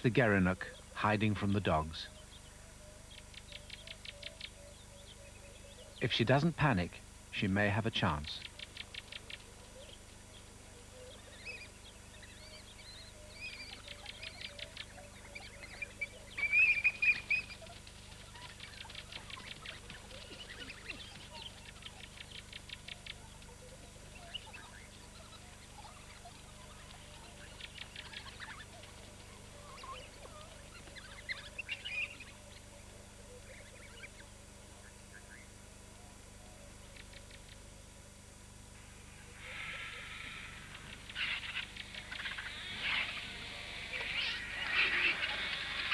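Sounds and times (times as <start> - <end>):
animal chirps and trills: 12.3 - 32.4, 39.3 - 45.9.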